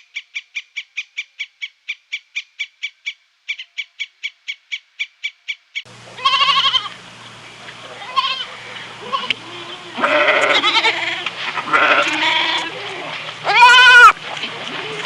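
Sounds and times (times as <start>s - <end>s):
goats bleating: 6.1s - 7.0s, 7.8s - 15.0s.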